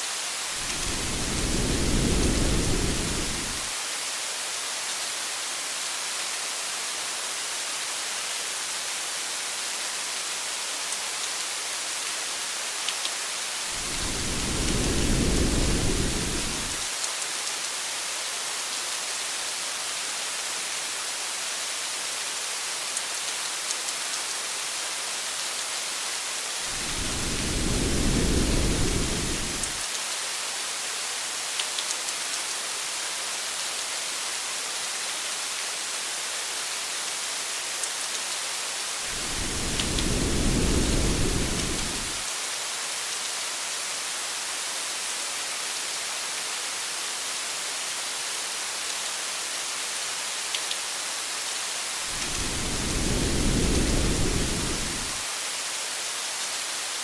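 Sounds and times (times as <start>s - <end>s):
heavy rain hissing: 0.0s - 4.0s, 13.4s - 17.0s, 26.4s - 29.9s, 38.8s - 42.5s, 51.8s - 55.6s
low rumble of thunder: 0.6s - 3.7s, 13.8s - 16.8s, 26.7s - 29.8s, 39.1s - 42.2s, 52.2s - 55.2s.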